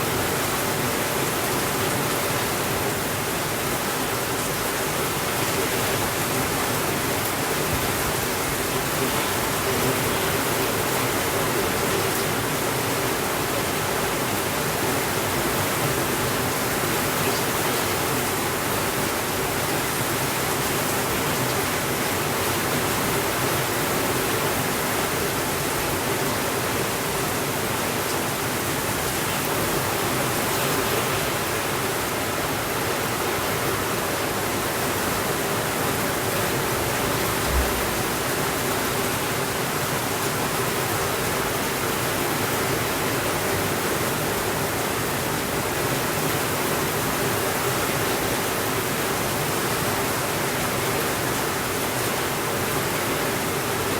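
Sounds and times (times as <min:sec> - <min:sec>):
steady rainfall: 0:00.0 - 0:53.9
low thump: 0:37.2 - 0:38.3.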